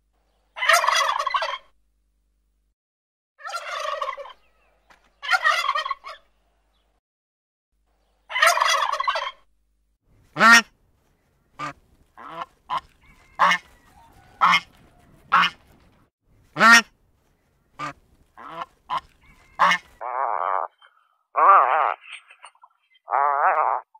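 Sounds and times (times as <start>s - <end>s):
geese honking: 0.6s - 1.7s, 3.4s - 6.3s, 8.3s - 9.4s, 10.3s - 10.7s, 11.6s - 15.8s, 16.5s - 17.0s, 17.7s - 22.5s
turkey gobble: 0.6s - 1.7s, 3.4s - 6.3s, 8.3s - 9.5s, 11.6s - 15.6s, 17.8s - 20.0s.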